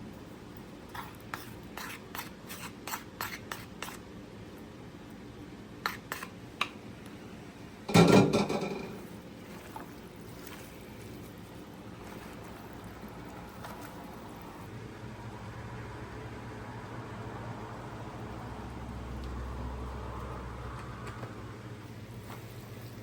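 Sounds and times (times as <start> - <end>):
utensil knocking on cookware: 7.9 - 9.0
cookware clattering: 7.9 - 9.1.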